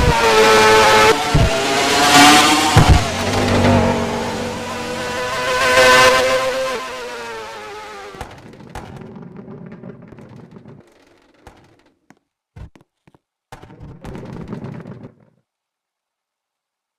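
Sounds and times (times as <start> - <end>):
car driving past: 0.7 - 7.7
rush of noise: 1.1 - 6.8.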